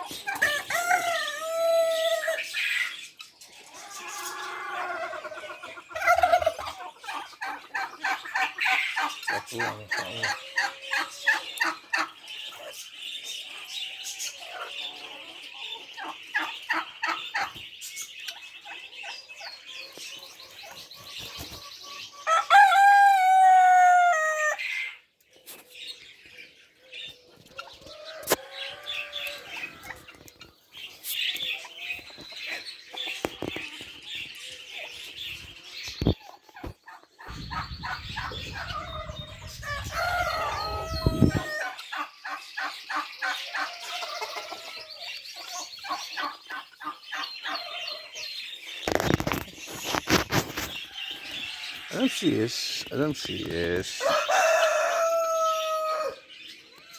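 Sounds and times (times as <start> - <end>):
poultry clucking and chirping: 0.0 - 56.9
rooster crowing: 38.6 - 41.8, 54.0 - 56.2.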